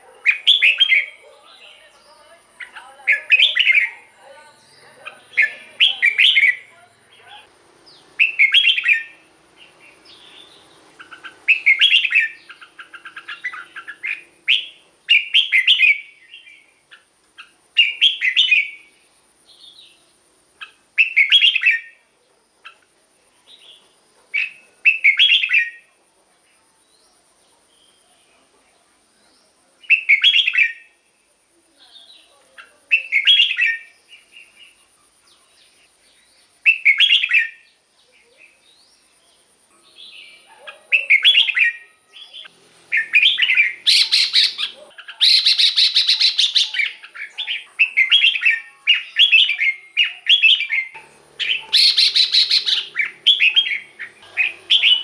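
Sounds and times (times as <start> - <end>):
bird whistled song phrases: 0.3 - 1.2, 2.6 - 6.7, 8.2 - 9.2, 9.9 - 16.6, 17.8 - 18.9, 20.6 - 22.0, 24.4 - 25.8, 29.9 - 31.0, 32.9 - 34.6, 36.6 - 37.6, 40.1 - 55.0
bird chattering calls: 2.5 - 16.1, 40.3 - 55.0.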